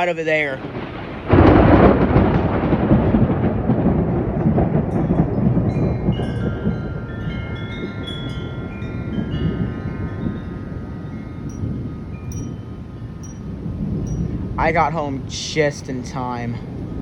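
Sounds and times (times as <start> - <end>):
thunder rumbling: 0.0 - 17.0
wind chimes ringing: 4.9 - 17.0.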